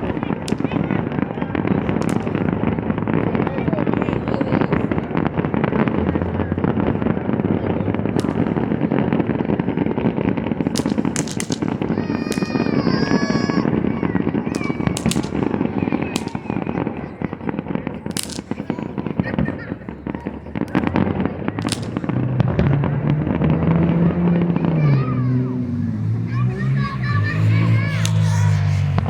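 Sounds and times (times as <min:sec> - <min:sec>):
sharp crackling reports: 0:00.0 - 0:29.0
fireworks shells bursting: 0:08.1 - 0:23.2, 0:24.5 - 0:29.0.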